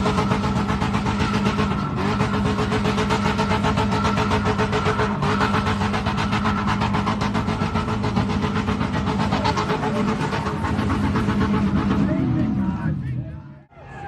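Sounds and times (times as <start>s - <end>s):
car engine pulsing at high revs: 0.0s - 13.5s.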